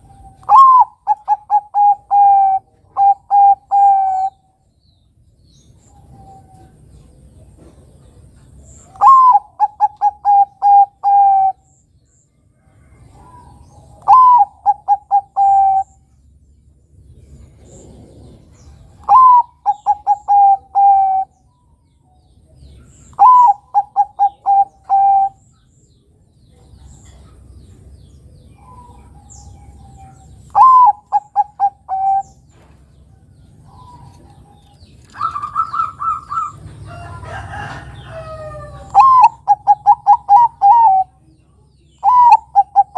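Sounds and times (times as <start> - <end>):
dove cooing song: 0.0 - 4.6, 5.7 - 11.8, 12.6 - 16.2, 17.1 - 21.8, 22.7 - 25.7, 26.6 - 42.9
rough bird calling: 0.0 - 4.6, 8.8 - 11.8, 13.1 - 16.1, 17.6 - 21.7, 22.8 - 25.7, 28.5 - 32.6, 33.5 - 41.2, 41.9 - 42.9
higher held bird call: 14.0 - 16.0, 23.1 - 25.4.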